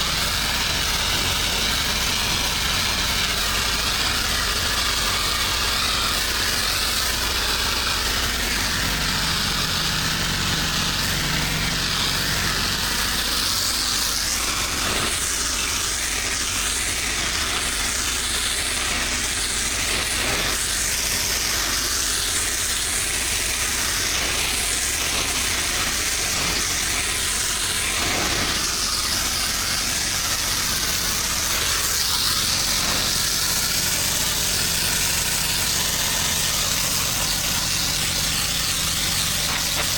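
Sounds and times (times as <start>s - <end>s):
engine hum: 0.0s - 16.3s
water spraying hiss: 0.0s - 39.9s.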